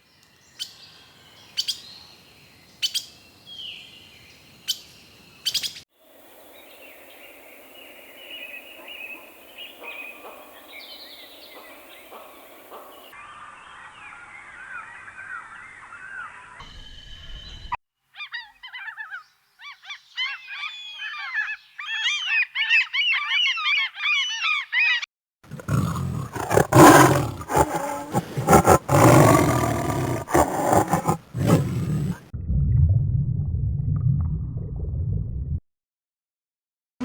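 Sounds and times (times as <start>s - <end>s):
animal roar: 25.5s - 32.3s
low rumble: 32.4s - 35.6s.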